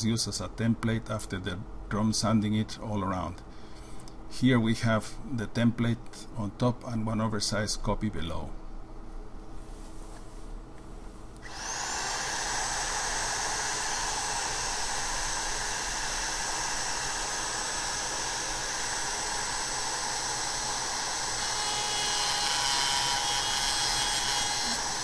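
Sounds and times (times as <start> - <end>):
electric router whining: 11.4 - 25.0.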